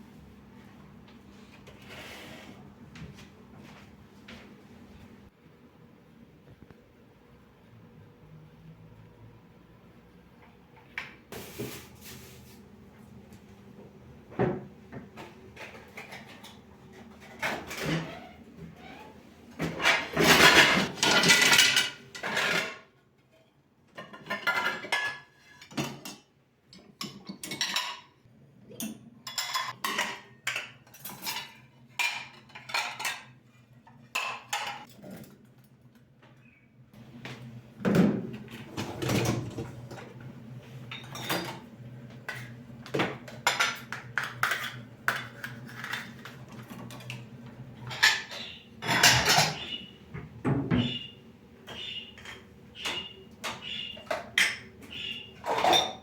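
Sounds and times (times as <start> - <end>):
dishes and cutlery clattering: 19.6 - 22.9, 23.9 - 35.4, 40.9 - 49.8, 51.7 - 54.8, 55.4 - 56.0.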